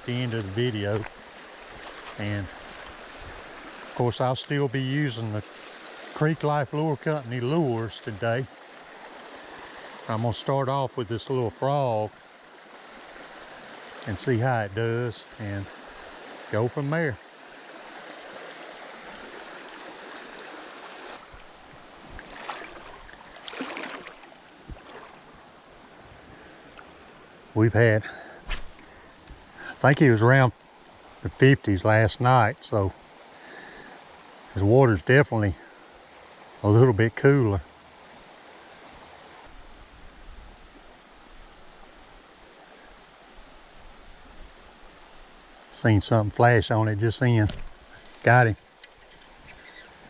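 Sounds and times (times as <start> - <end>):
creek water running: 0.0 - 50.0
high insect trill: 0.0 - 50.0
light knocks or splashes: 17.8 - 25.4, 28.4 - 30.1.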